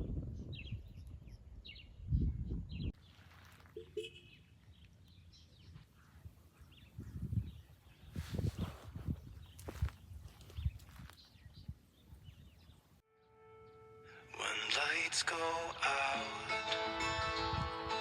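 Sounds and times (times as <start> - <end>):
small birds chirping: 0.3 - 13.0.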